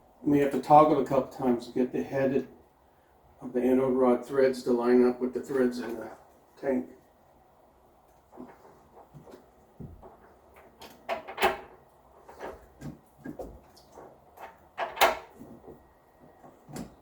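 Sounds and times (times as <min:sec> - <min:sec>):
metal knocking and clicking: 0:10.6 - 0:11.8, 0:14.4 - 0:15.4.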